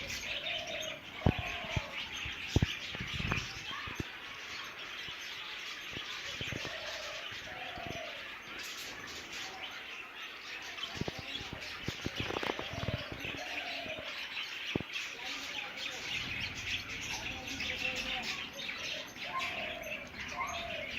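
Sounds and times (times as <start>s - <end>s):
parakeets warbling and chirping: 0.0s - 20.9s
wing flutters: 11.0s - 13.6s.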